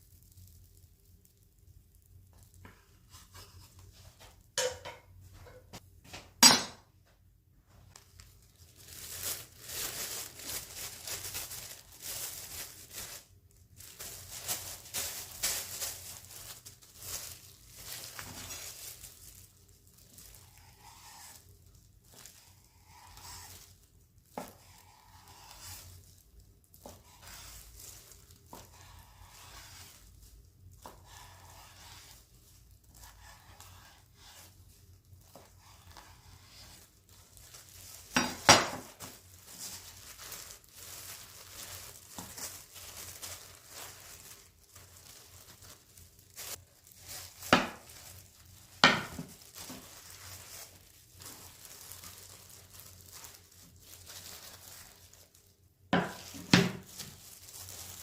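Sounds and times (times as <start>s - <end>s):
rustling and crinkling: 0.0s - 58.0s.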